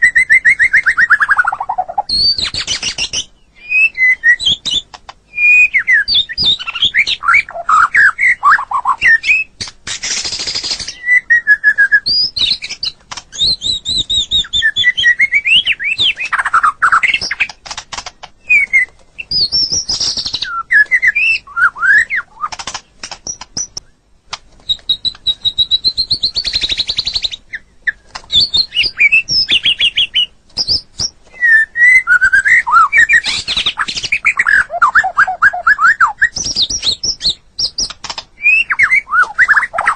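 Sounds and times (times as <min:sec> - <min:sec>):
harsh rasping bird notes: 0:00.0 - 0:11.8
bird singing whistled phrases: 0:00.0 - 0:17.5, 0:18.4 - 0:22.6, 0:24.7 - 0:39.9.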